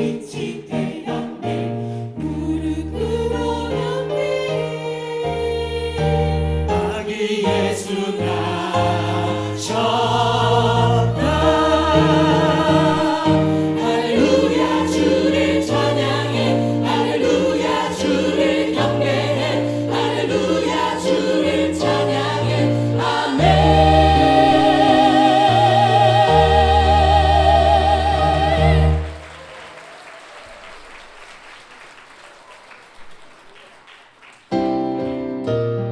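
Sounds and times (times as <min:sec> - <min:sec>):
choir singing gospel song: 0:00.0 - 0:29.7
instrumental accompaniment: 0:08.5 - 0:29.3.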